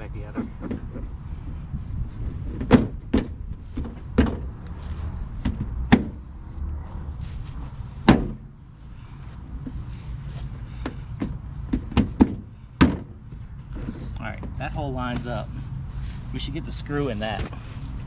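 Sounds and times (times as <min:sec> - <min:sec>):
low steady rumble: 0:00.0 - 0:18.0
car body part knocking into place: 0:02.5 - 0:04.5, 0:08.0 - 0:08.4, 0:11.7 - 0:13.1.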